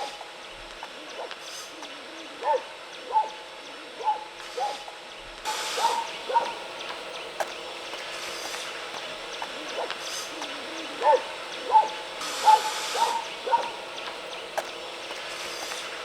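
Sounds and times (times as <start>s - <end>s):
animal calling: 5.5s - 16.0s.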